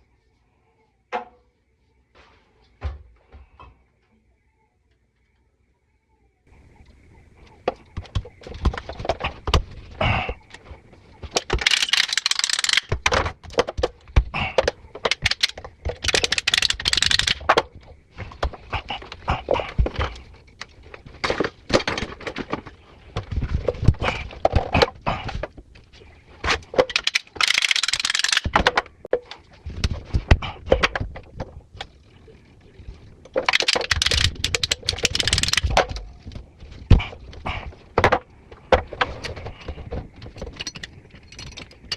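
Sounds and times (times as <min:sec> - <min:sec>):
clicks and clatters of metal hardware: 0:11.3 - 0:13.7, 0:14.6 - 0:17.6, 0:26.5 - 0:29.4, 0:33.4 - 0:36.4, 0:39.0 - 0:41.9.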